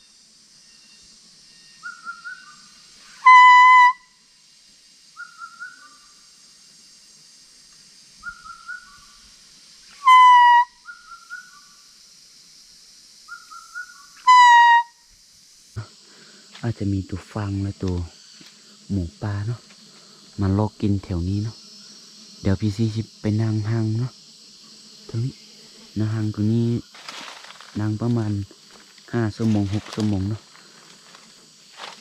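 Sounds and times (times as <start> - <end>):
reedy whistled game call: 3.2 - 4.0, 10.0 - 11.5, 13.3 - 15.0.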